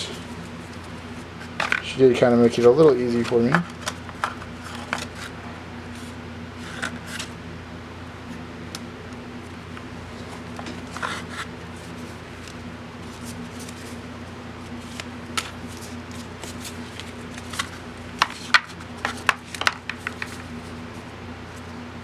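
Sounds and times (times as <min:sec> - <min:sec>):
cards rustling and sliding: 0:00.0 - 0:02.0, 0:03.2 - 0:07.4, 0:08.3 - 0:21.8
steady low hum: 0:00.0 - 0:22.0
cards tapped together: 0:14.9 - 0:20.5.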